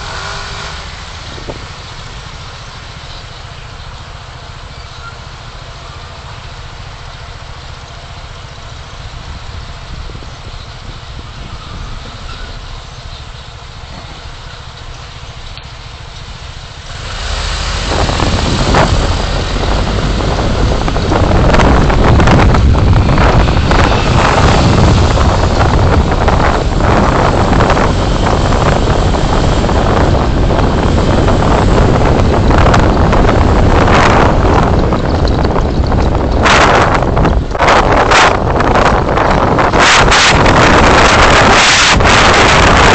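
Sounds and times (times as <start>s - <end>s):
car road and engine rumble: 0.0s - 42.9s
wind buffeting microphone: 8.6s - 14.8s, 15.9s - 42.9s.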